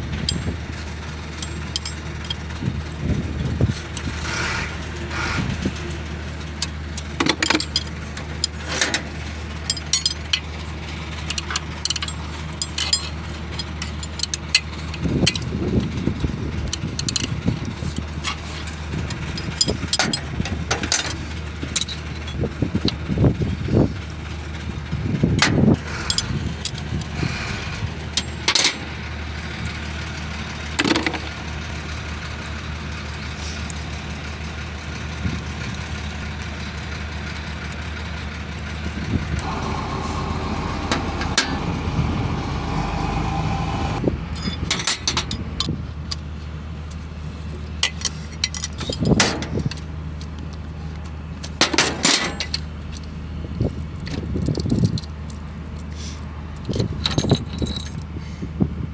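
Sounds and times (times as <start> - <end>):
diesel engine running: 0.0 - 58.9
sharp clicks and knocks: 30.8 - 31.4, 47.8 - 53.1
steady higher tone: 39.4 - 44.5.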